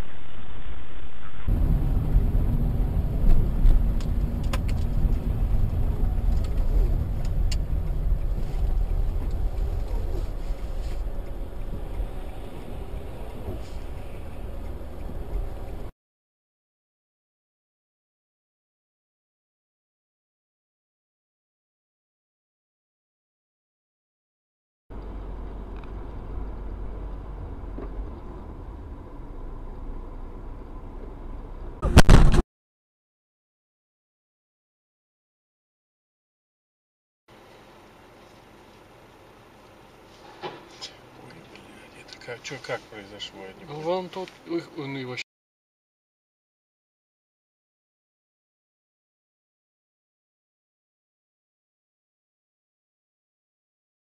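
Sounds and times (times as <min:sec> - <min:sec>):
car engine and tyre rumble: 0:00.0 - 0:15.9, 0:24.9 - 0:32.2, 0:37.3 - 0:45.2.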